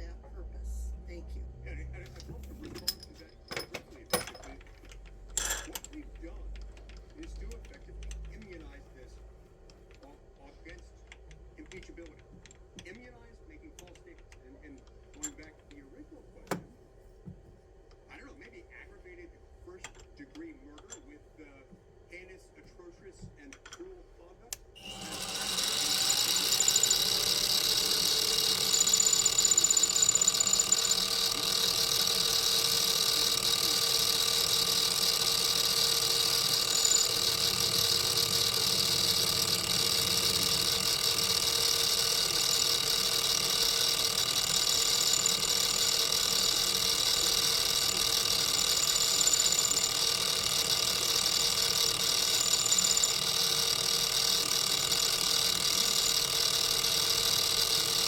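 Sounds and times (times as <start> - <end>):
machine tool motor humming: 24.8 - 58.0.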